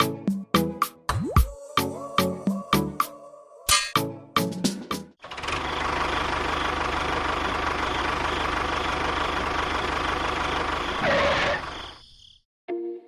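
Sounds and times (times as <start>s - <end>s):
engine running: 5.2s - 11.7s.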